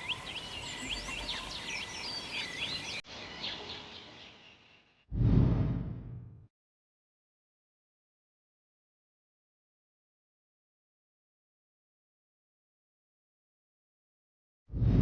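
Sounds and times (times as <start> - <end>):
birds chirping: 0.0 - 5.0
low rumble: 5.1 - 6.4, 14.7 - 15.0.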